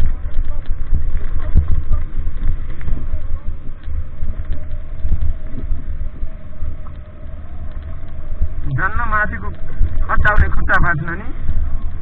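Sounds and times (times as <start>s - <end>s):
steady mid-pitched whine: 0.0s - 12.0s
wind buffeting microphone: 0.0s - 12.0s.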